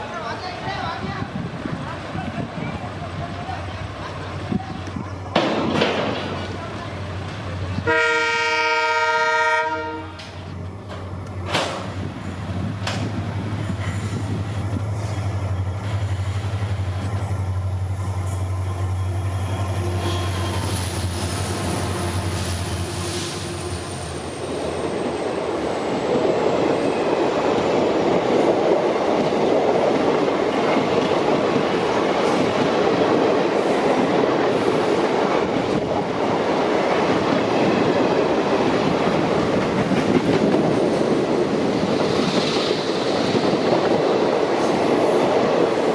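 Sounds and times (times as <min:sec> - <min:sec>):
train coaches rumbling on rails: 0:00.0 - 0:45.9
diesel locomotive engine drone: 0:01.2 - 0:29.3.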